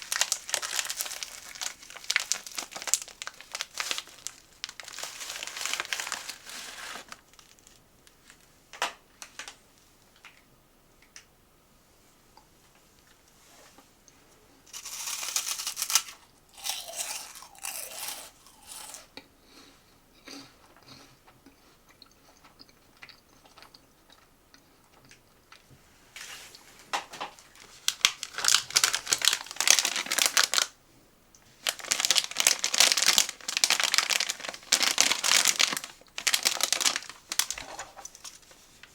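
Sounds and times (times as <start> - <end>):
snack packaging crinkling: 0.0 - 8.5, 14.7 - 19.1, 27.3 - 30.8, 31.4 - 38.9.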